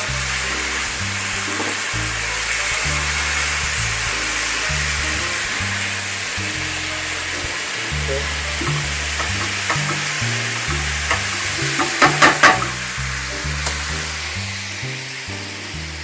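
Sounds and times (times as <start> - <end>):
background music with bass: 0.0 - 16.0
food sizzling in a frying pan: 0.0 - 16.0
utensil knocking on a pan: 8.6 - 12.8.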